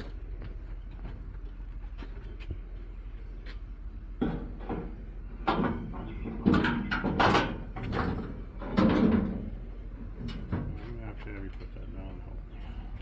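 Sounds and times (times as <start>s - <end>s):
clunks and knocks: 4.2s - 11.8s.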